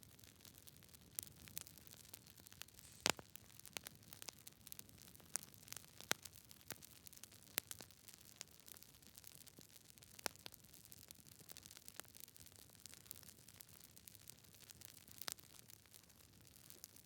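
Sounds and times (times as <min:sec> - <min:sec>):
campfire crackling: 0:00.1 - 0:17.0
faint hiss: 0:02.6 - 0:03.4.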